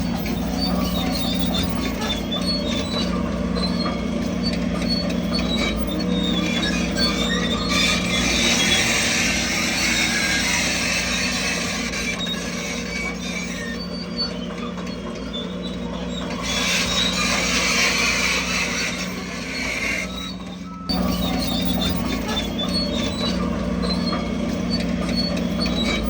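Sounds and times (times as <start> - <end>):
bulldozer diesel engine running: 0.0 - 26.0
high-pitched metallic squealing: 0.0 - 26.0.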